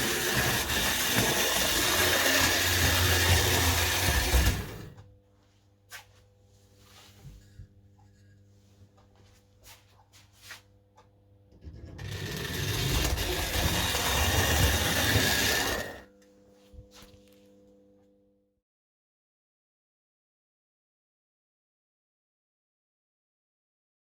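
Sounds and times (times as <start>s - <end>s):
model locomotive whirring rattle: 0.0s - 5.0s, 11.9s - 16.1s
faint steady hum: 4.7s - 13.5s, 16.0s - 18.5s.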